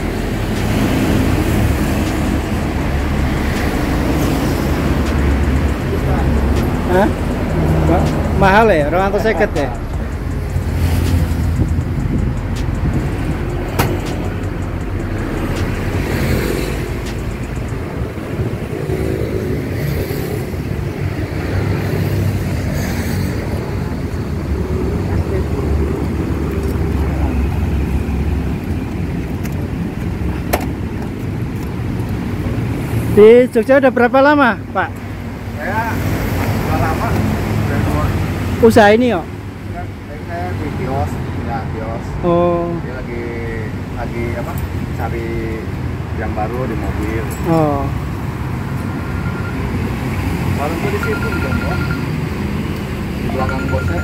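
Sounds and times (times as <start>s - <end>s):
low engine hum: 0.0s - 22.1s
traffic noise: 0.0s - 54.0s.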